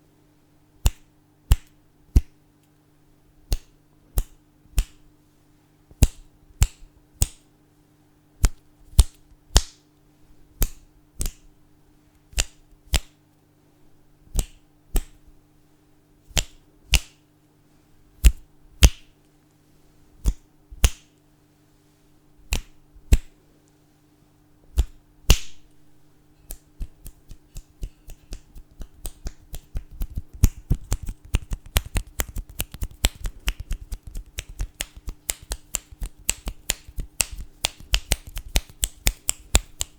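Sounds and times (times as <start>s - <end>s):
fingers snapping: 0.8s - 2.4s, 3.5s - 5.0s, 6.0s - 7.5s, 8.4s - 9.8s, 10.6s - 11.5s, 12.3s - 13.2s, 14.3s - 15.2s, 16.3s - 17.2s, 18.2s - 19.1s, 20.2s - 21.2s, 22.5s - 23.3s, 24.7s - 25.6s, 26.4s - 39.9s
fast quiet clicks: 26.5s - 39.9s.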